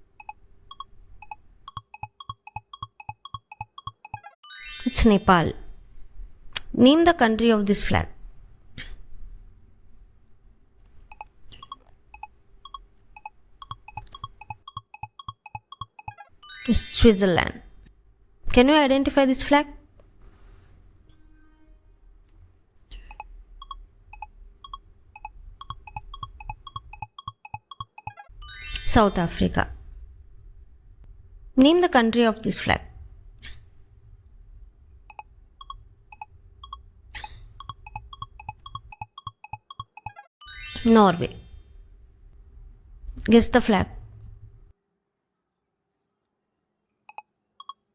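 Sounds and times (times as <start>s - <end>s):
electronic countdown ticks: 0.0s - 4.4s, 11.1s - 16.3s, 23.1s - 28.3s, 35.1s - 40.3s, 47.1s - 47.8s.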